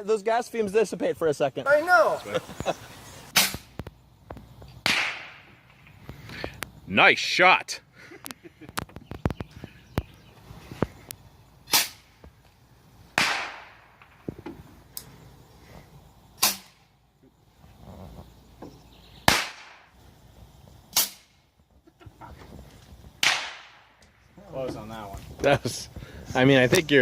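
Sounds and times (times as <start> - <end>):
rocket hiss: 1.8 - 3.8, 11.6 - 12.3, 16.4 - 16.9, 19.2 - 21.4
bottle rockets popping: 2.4 - 3.8, 4.8 - 6.0, 11.7 - 12.2, 13.2 - 14.4, 19.2 - 19.9, 20.9 - 21.4, 23.2 - 24.1.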